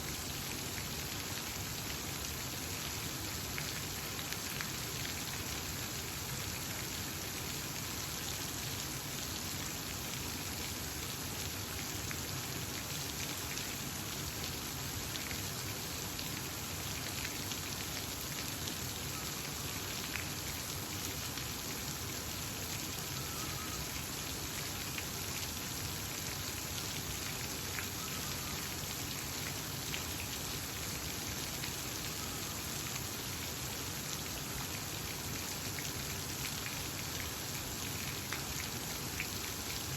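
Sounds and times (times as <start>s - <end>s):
rushing water: 0.0s - 39.9s
faint bird chirps: 23.1s - 23.9s, 28.0s - 28.7s, 32.0s - 32.7s.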